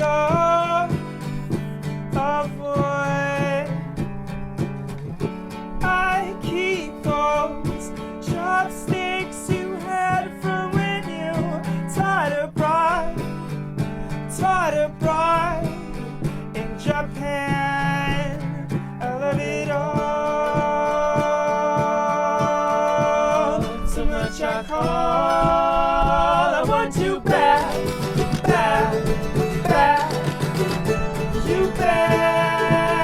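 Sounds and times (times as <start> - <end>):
strummed acoustic guitar: 0.0 - 33.0
person singing melody: 5.8 - 33.0
voices holding harmony notes: 19.7 - 33.0.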